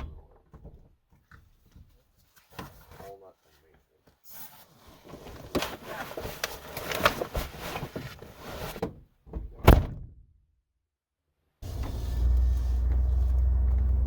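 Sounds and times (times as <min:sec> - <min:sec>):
loud thump: 0:09.6 - 0:10.2.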